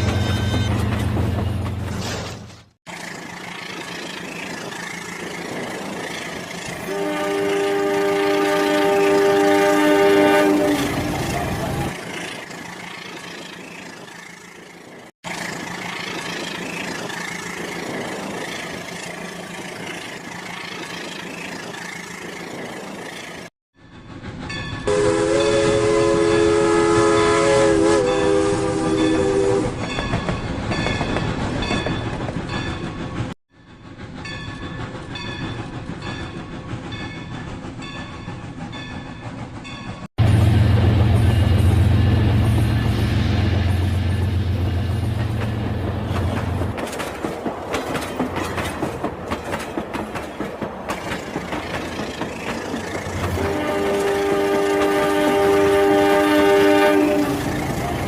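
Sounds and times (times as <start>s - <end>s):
toy train horn: 6.9s - 10.9s, 24.9s - 29.7s, 53.3s - 57.4s.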